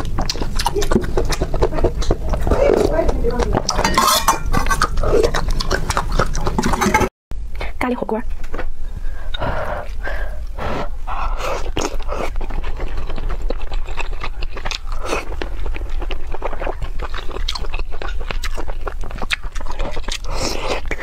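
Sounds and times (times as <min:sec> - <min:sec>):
wet chewing and lip smacks: 0:00.0 - 0:07.0, 0:11.6 - 0:21.0
steady low hum: 0:00.0 - 0:18.3.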